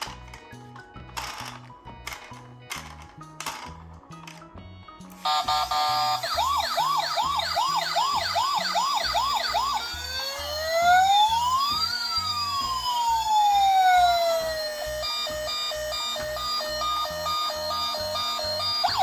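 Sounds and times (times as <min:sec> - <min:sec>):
electronic sirens wailing: 0:05.2 - 0:19.0.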